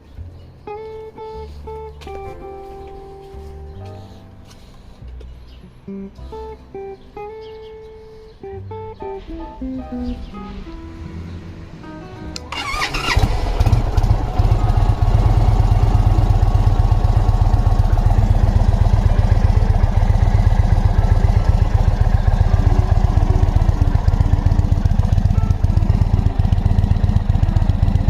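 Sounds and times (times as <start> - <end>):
motorcycle engine starting and idling: 12.3 - 28.0.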